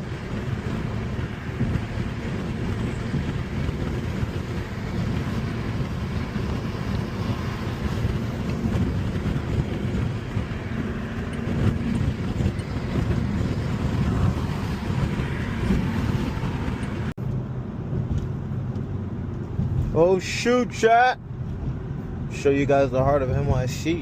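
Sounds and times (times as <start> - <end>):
wind rushing past: 0.0 - 17.2
car engine: 0.0 - 24.0
road noise: 0.0 - 24.0.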